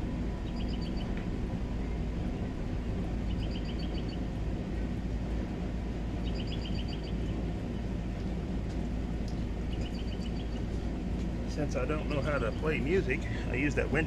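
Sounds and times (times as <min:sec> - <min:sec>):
steady low rumble: 0:00.0 - 0:14.0
songbird trilling: 0:00.5 - 0:01.1, 0:03.3 - 0:04.2, 0:06.2 - 0:07.3, 0:09.7 - 0:10.7, 0:12.0 - 0:12.8.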